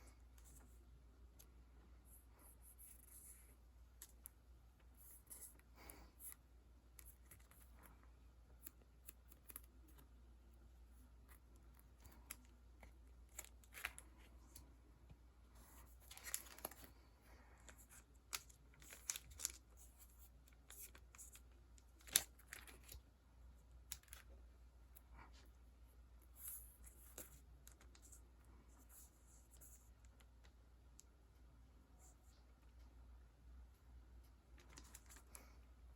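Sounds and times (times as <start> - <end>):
paper and plastic rustling: 15.6 - 17.0, 17.7 - 21.4.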